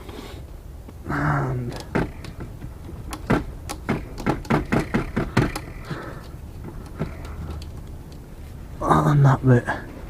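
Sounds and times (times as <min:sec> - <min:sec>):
sharp clicks and knocks of parts: 0:01.6 - 0:08.4.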